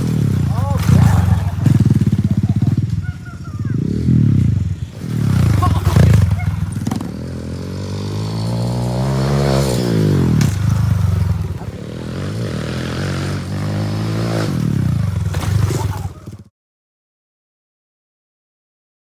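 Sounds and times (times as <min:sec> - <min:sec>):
dirt bike engine revving: 0:00.0 - 0:16.5.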